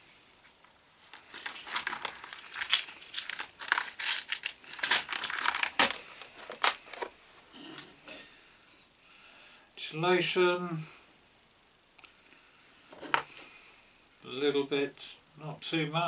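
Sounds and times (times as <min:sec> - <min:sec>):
wires crinkling and clicking: 0:00.6 - 0:08.0.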